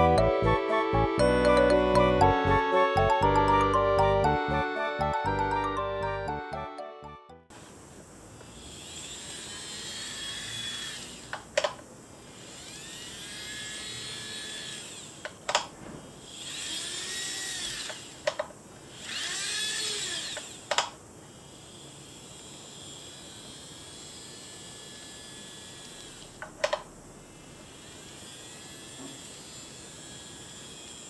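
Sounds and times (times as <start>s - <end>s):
model train motor whine: 7.5s - 31.0s.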